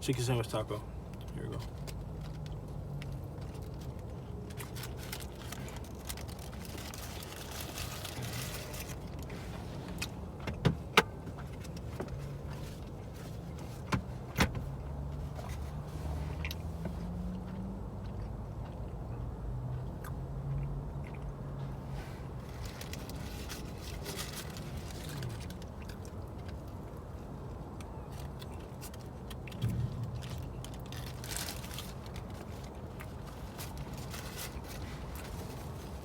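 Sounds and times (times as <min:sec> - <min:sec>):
wrapper rustling: 0:04.6 - 0:09.3, 0:22.5 - 0:25.6, 0:30.2 - 0:36.0.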